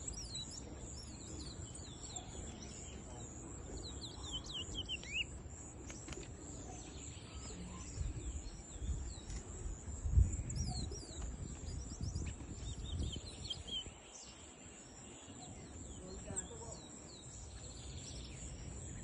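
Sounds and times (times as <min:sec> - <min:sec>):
finch whistled song: 0:03.8 - 0:05.3, 0:10.3 - 0:14.4
wind rumble on microphone: 0:07.4 - 0:17.5.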